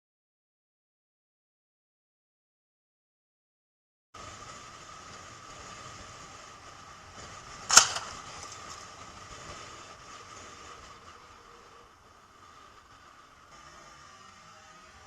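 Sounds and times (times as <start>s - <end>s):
vehicle road noise: 4.2s - 15.0s.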